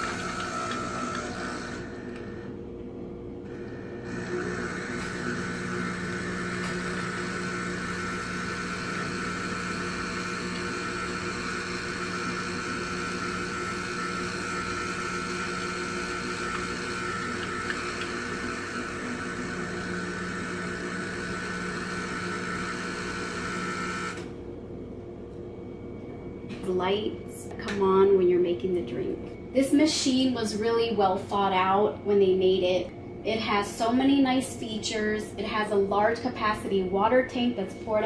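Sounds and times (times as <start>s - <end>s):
coffee machine whirring: 0.0s - 2.7s, 3.4s - 24.4s.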